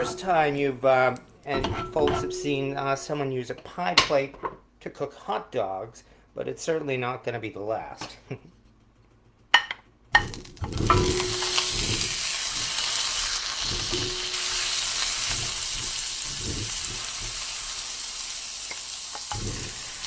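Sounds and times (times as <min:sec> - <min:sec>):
hot dogs sizzling in butter: 0:10.2 - 0:20.0.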